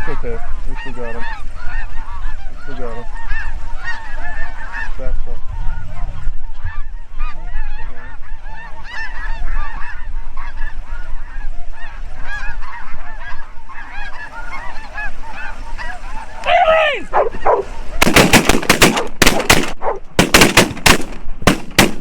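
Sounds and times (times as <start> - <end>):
geese honking: 0.0 - 21.2
loud falling bird cry: 11.8 - 20.9
shotgun blasts: 18.0 - 22.0.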